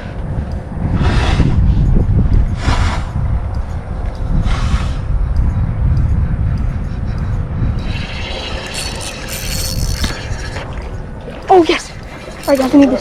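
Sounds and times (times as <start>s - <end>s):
wind buffeting microphone: 0.0s - 13.0s
hissing washes of noise: 2.6s - 3.2s, 4.3s - 5.1s.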